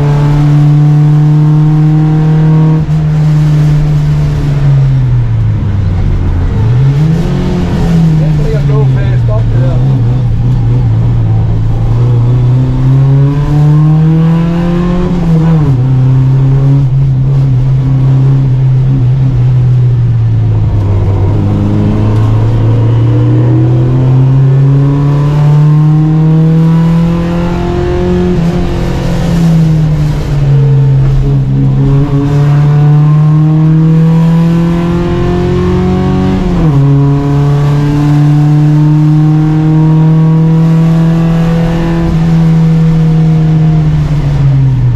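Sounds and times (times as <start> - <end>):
race car engine at full throttle: 0.0 - 44.9.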